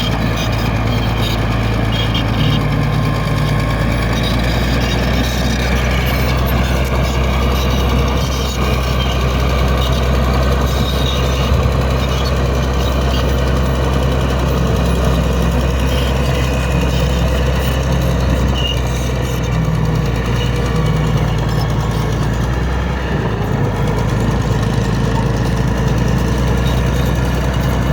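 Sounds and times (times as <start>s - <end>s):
bulldozer diesel engine droning: 0.0s - 27.9s.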